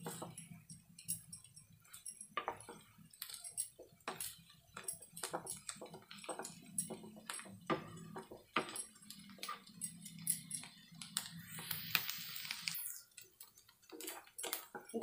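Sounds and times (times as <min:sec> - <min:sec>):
food crackling in oil: 0:00.0 - 0:15.0
brief hiss: 0:11.6 - 0:13.0.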